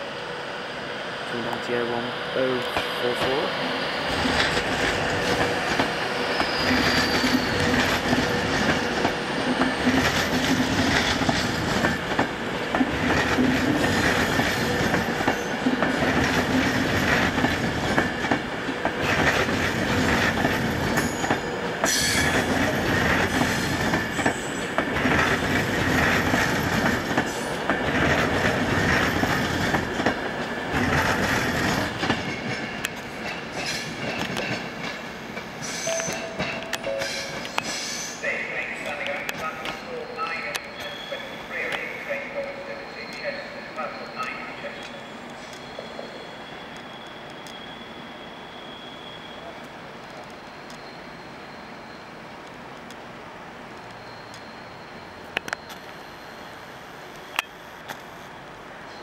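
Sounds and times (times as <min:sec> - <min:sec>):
train wheels rolling on rail: 0:00.0 - 0:59.0.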